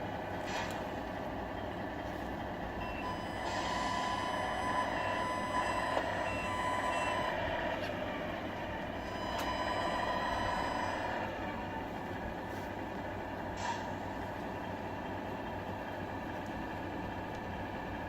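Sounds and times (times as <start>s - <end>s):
diesel engine sound: 0.0s - 18.0s
high reversing beeps: 2.8s - 7.8s, 9.0s - 11.2s.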